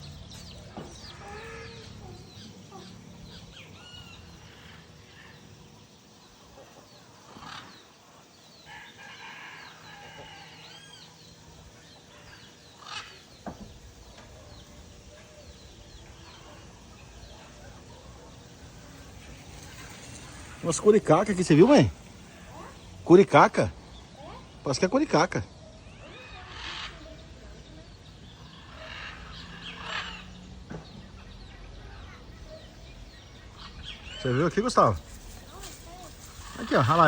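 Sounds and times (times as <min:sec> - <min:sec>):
birds chirping and clucking: 0:00.0 - 0:37.0.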